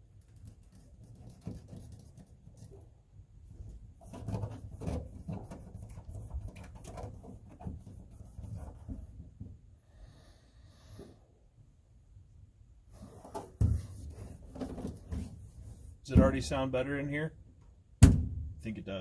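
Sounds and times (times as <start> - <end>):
hands pressing and rubbing mat: 12.9 - 16.6.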